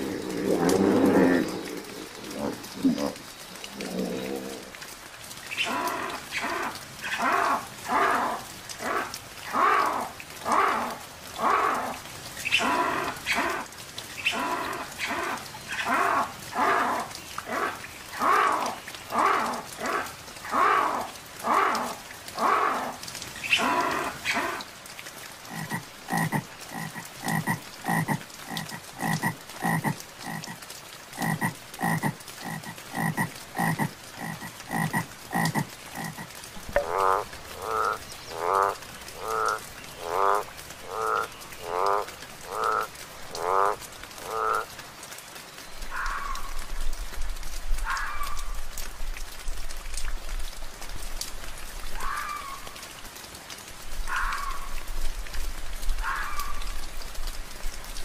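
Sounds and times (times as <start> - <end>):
animal calling rhythmically: 5.5 - 13.6, 14.2 - 24.6, 25.5 - 30.6, 31.2 - 42.8
frog croaking in pulses: 25.4 - 44.7.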